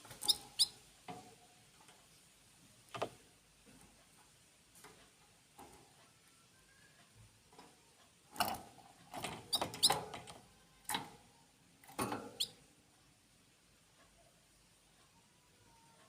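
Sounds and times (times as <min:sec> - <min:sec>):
birds scrabbling and fluttering: 0:00.0 - 0:02.0, 0:07.5 - 0:11.2
high bird chirps: 0:00.2 - 0:00.8.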